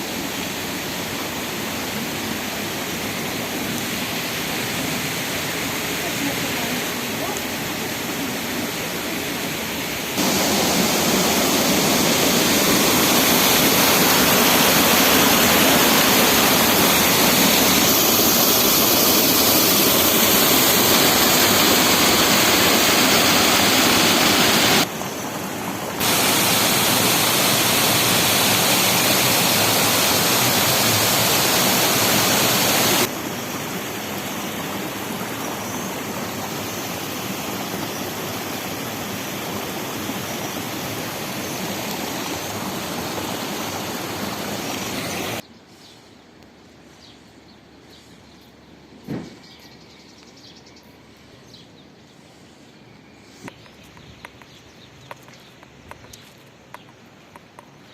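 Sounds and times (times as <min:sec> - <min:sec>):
waterfall rushing: 0:00.0 - 0:45.4.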